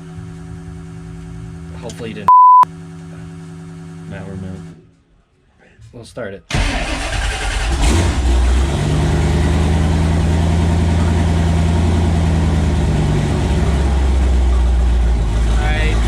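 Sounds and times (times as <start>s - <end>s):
car engine idling: 6.5s - 16.0s.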